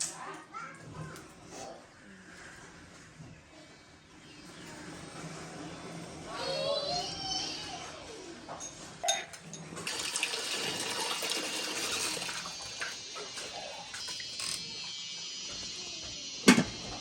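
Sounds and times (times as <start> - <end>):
water running and splashing: 9.8 - 14.4.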